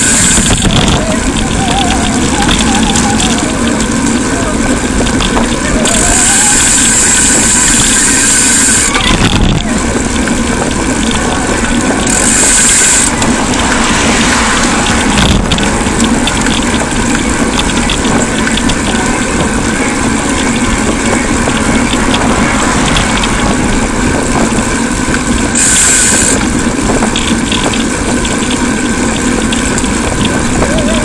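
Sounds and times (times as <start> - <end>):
bicycle rattles: 0.0 - 31.0
wind and road noise: 0.0 - 31.0.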